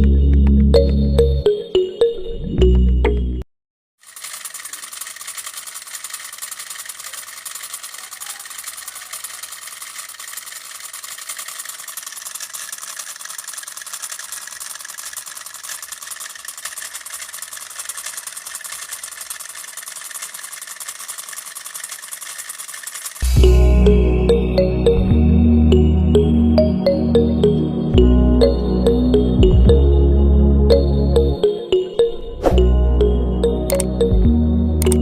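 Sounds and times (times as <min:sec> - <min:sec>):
small motor running: 0:04.0 - 0:24.0.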